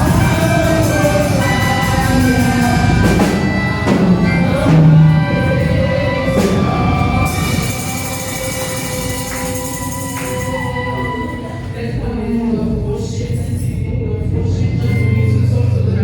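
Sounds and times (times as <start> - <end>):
drum and cymbal strokes: 0.0 - 11.6
church band music: 0.0 - 12.8.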